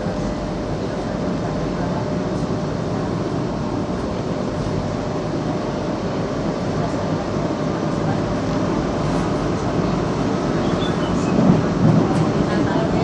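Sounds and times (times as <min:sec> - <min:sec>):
metro train rumble: 0:00.0 - 0:13.0
train carriage bump: 0:10.8 - 0:13.0.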